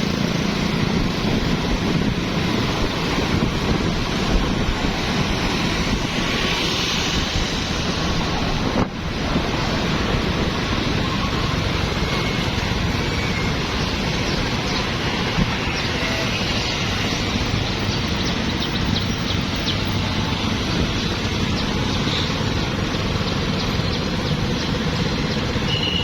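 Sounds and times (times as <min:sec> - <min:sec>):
wind on microphone: 0:00.0 - 0:25.5
street traffic: 0:00.0 - 0:26.0.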